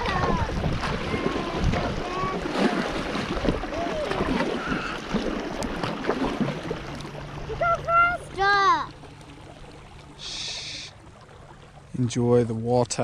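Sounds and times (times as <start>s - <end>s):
wind buffeting microphone: 0.0s - 6.8s
kayak paddling water: 0.0s - 13.0s.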